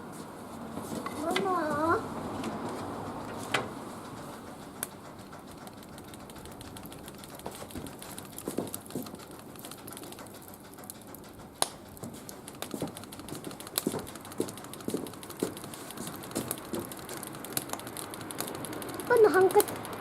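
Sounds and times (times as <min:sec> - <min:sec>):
firewood crackling and popping: 0:01.2 - 0:20.0.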